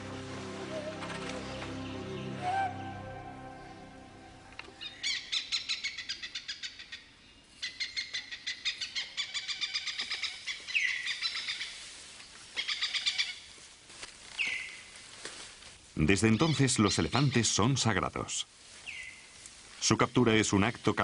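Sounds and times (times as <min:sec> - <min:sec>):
downward sweeping bird calls: 0:00.0 - 0:07.0.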